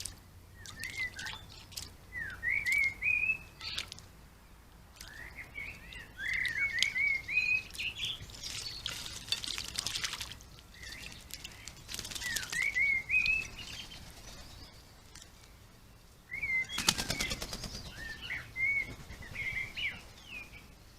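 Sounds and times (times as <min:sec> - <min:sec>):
songbird warbling: 0:00.0 - 0:20.8
wings fluttering: 0:08.2 - 0:15.3, 0:16.6 - 0:20.0.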